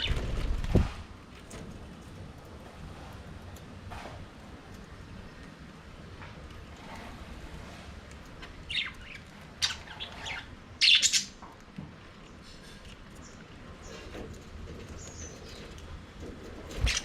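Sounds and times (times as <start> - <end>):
low background noise: 0.0 - 17.0
budgerigars chirping: 8.7 - 11.4.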